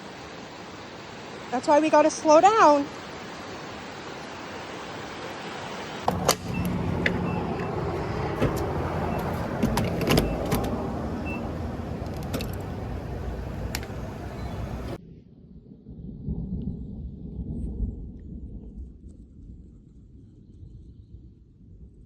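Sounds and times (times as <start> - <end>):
car engine rumble: 6.1 - 15.0
sharp clicks and rattles: 6.1 - 15.0.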